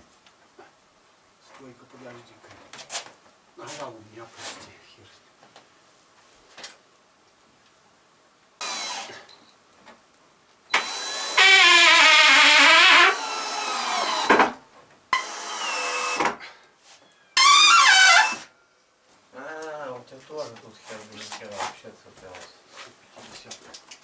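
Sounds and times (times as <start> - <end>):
power saw cutting wood: 8.6 - 9.2, 10.7 - 14.6, 15.2 - 16.4, 17.4 - 18.5.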